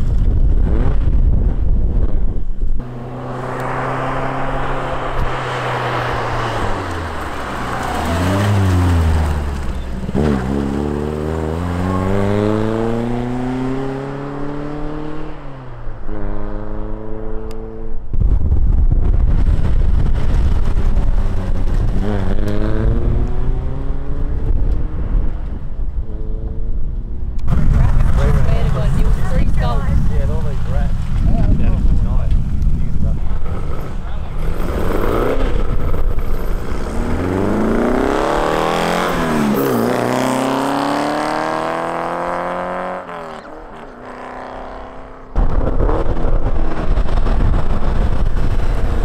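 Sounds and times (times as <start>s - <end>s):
wind buffeting microphone: 0.0s - 9.2s, 16.6s - 39.5s, 45.4s - 49.0s
car engine accelerating hard: 2.8s - 17.9s, 19.6s - 25.4s, 33.2s - 49.0s.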